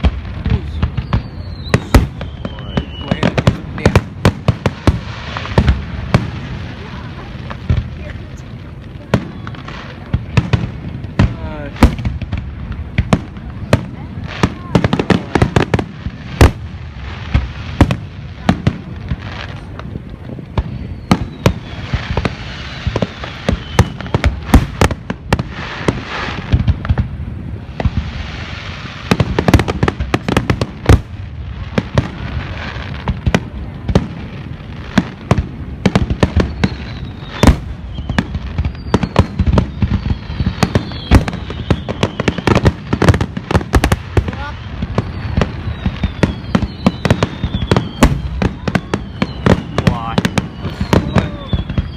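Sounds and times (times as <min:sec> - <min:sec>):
falling firework whistles: 0:00.0 - 0:05.8, 0:20.6 - 0:27.0, 0:35.3 - 0:51.9
crackling rumble: 0:00.0 - 0:51.9
fireworks bangs: 0:00.0 - 0:51.9.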